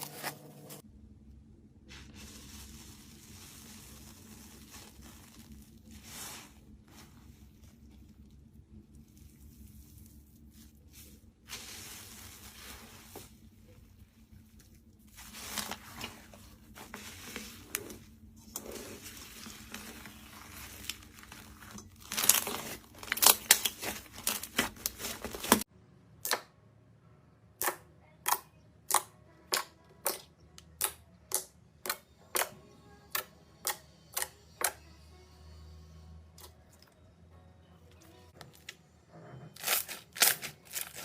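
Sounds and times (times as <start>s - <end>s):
slime squishing and crackling: 2.1s - 25.7s, 39.6s - 41.0s.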